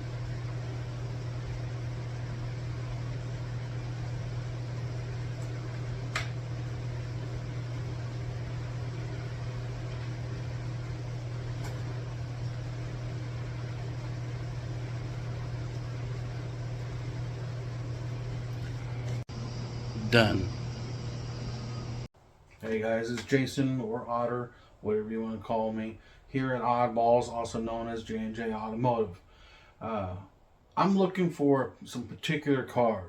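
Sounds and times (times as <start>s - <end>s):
low machine hum: 0.0s - 22.1s.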